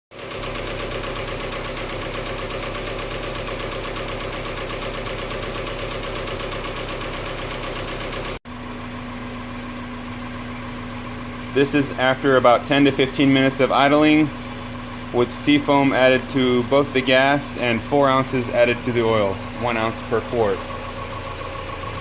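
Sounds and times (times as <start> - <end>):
car engine idling with lifter tick: 0.1 - 22.0.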